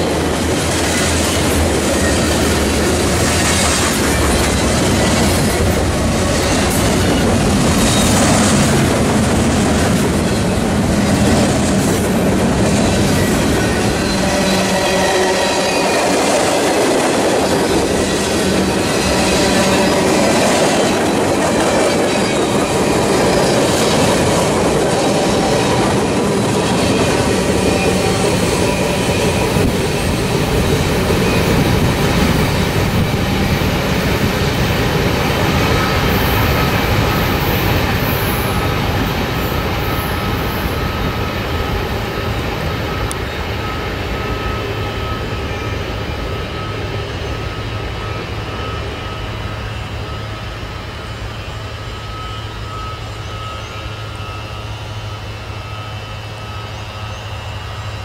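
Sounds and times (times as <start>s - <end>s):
clickety-clack on rail joints: 0.0s - 49.4s
freight train wheels rumbling: 0.0s - 58.0s
wheel squeal: 11.8s - 16.7s, 17.3s - 34.5s, 35.1s - 41.6s.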